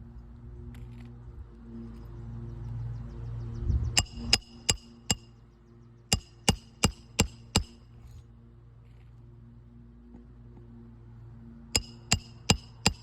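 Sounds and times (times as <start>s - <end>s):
hammer driving nails into shingle: 6.1s - 7.8s, 11.8s - 13.0s.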